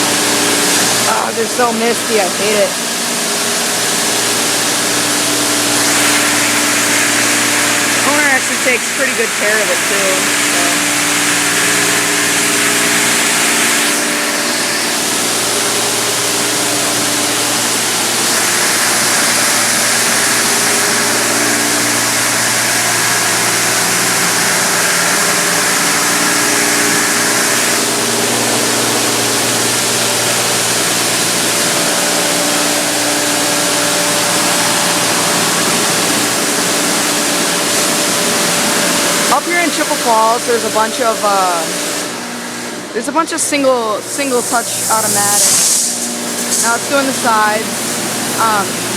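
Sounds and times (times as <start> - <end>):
car wash water spray hiss: 0.0 - 48.9.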